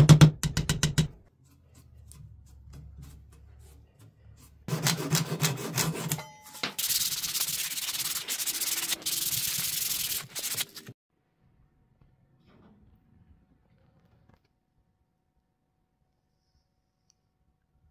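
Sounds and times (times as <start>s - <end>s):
sandpaper rubbing on wood: 1.5s - 6.2s, 6.8s - 11.0s.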